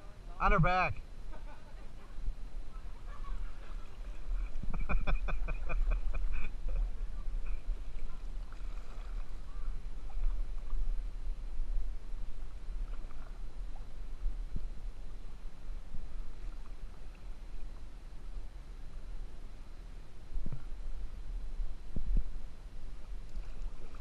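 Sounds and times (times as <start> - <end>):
steady low rumble: 0.0 - 24.0
kayak paddle splashing water: 2.8 - 17.9, 23.1 - 24.0.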